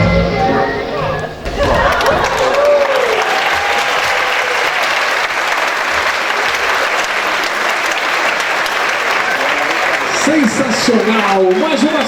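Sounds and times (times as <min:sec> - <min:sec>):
audience applauding: 0:01.5 - 0:12.0.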